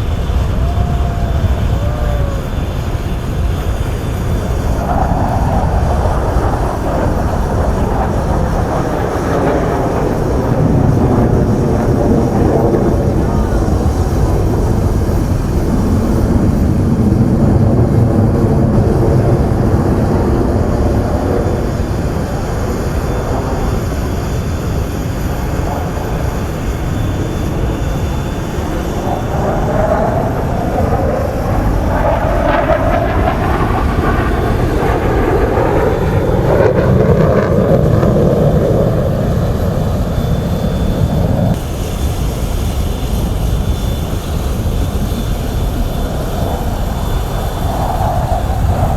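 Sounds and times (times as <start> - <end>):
jet engines rumbling: 0.0 - 48.9
jet passing by: 0.0 - 48.9.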